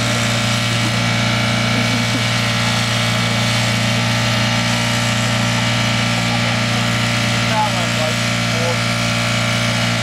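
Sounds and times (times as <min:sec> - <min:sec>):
car engine at high revs: 0:00.0 - 0:10.0.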